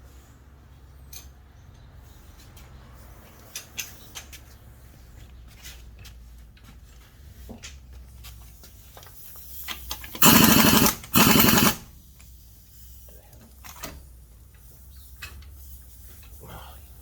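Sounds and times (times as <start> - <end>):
impact gun hammering: 10.2 - 11.8.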